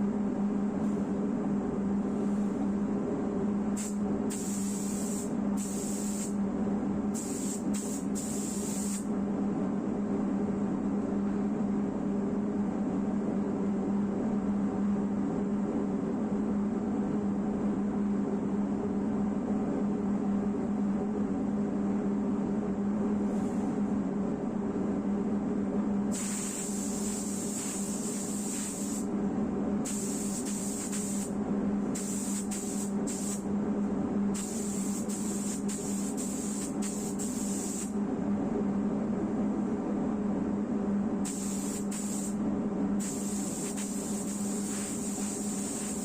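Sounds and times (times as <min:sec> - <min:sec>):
steady mechanical hum: 0:00.0 - 0:46.0
air spray gun hissing: 0:03.8 - 0:06.4, 0:07.1 - 0:09.1, 0:26.1 - 0:29.1, 0:29.8 - 0:31.3, 0:32.0 - 0:33.4, 0:34.4 - 0:38.0, 0:41.2 - 0:42.4, 0:43.0 - 0:46.0.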